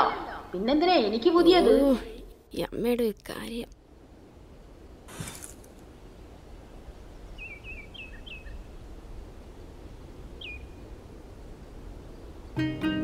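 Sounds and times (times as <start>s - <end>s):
low background noise: 0.0s - 13.0s
small bird chirping: 7.4s - 8.7s, 10.4s - 10.8s.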